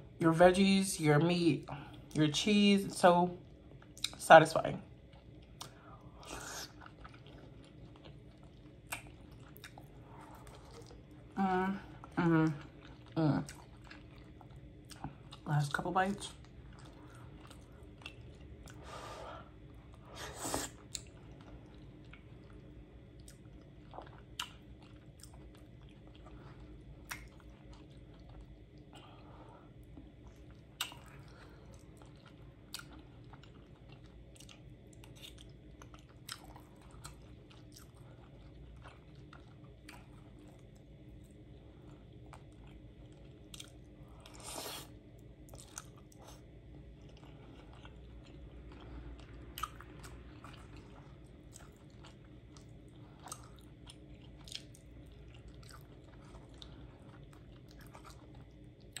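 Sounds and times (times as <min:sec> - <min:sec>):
chewing and mouth sounds: 0:03.4 - 0:04.2, 0:04.9 - 0:15.5, 0:16.2 - 0:59.0
slurp: 0:20.1 - 0:21.0, 0:44.3 - 0:44.9.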